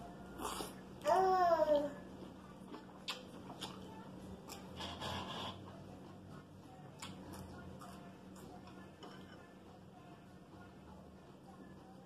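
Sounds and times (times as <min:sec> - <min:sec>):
faint steady hum: 0:00.0 - 0:12.0
chewing crisp salad: 0:00.2 - 0:00.9, 0:02.1 - 0:09.6.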